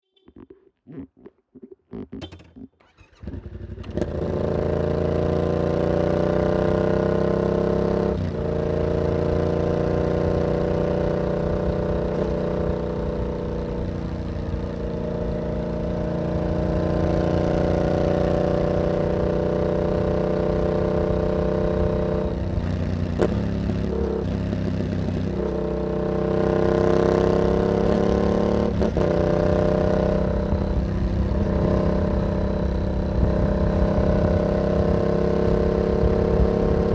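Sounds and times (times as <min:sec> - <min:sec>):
motorcycle engine revving: 0:01.8 - 0:36.9.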